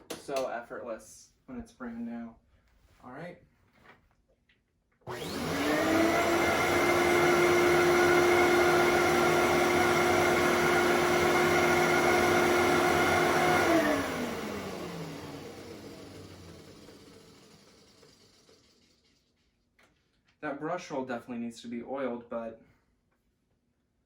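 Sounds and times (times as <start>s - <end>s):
vacuum cleaner motor whine: 5.1s - 18.4s.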